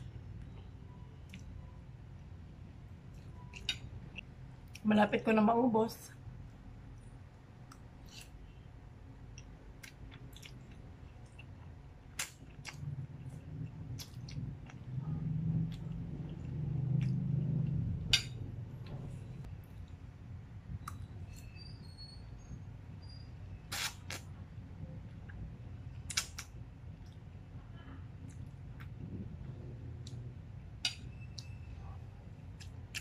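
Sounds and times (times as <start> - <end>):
wet chewing: 9.3 - 14.9.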